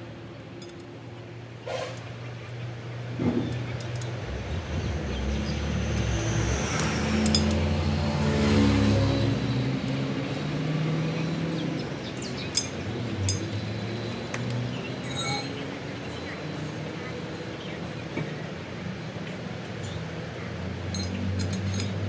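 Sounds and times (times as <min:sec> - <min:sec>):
engine running: 0:01.6 - 0:14.7.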